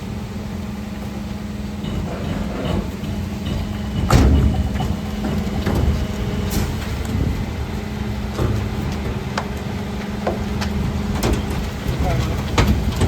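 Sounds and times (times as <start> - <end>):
refuse truck engine humming: 0.0 - 13.0
sharp knocks: 1.8 - 6.9.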